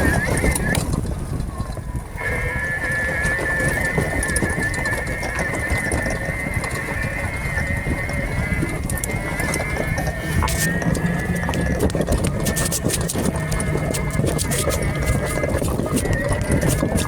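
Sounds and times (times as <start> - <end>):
atv engine whining: 0.0 - 17.0.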